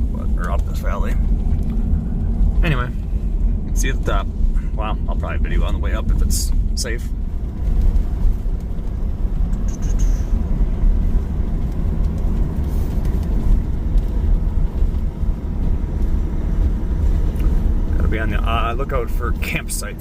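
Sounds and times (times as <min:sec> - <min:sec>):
truck engine and tyres rumbling: 0:00.0 - 0:20.0.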